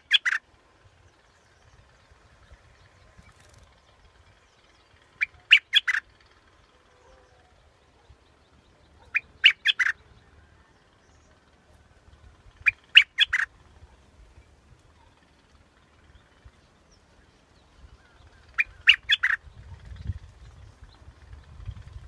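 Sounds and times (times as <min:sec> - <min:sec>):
bulbul singing: 0:00.0 - 0:00.4, 0:04.8 - 0:06.1, 0:07.0 - 0:11.4, 0:12.6 - 0:13.5, 0:16.6 - 0:20.0.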